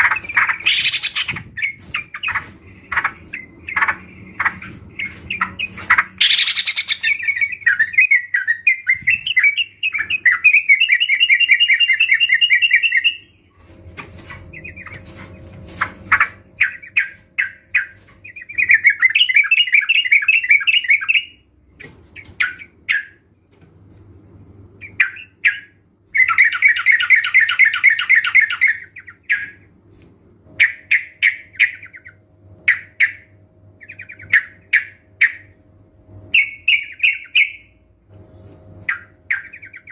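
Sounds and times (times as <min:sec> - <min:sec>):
birds chattering calls: 0:00.0 - 0:23.2, 0:24.8 - 0:29.7.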